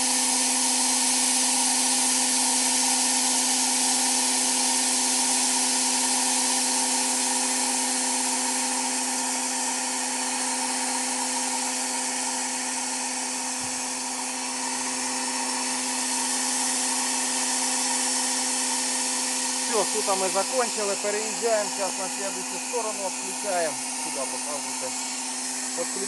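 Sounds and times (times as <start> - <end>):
spray gun hissing: 6.2 - 26.0
machine hum: 12.4 - 26.0.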